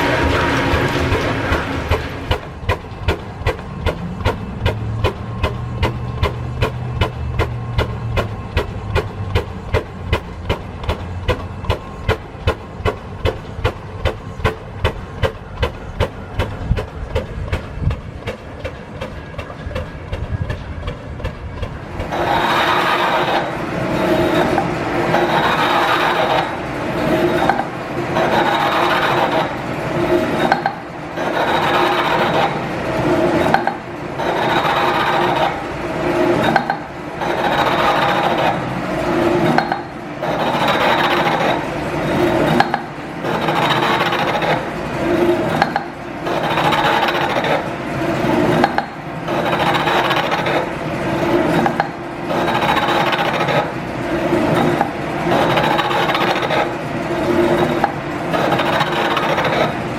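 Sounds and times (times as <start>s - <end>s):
machine tool scraping cut: 22.0s - 53.7s, 54.3s - 59.9s.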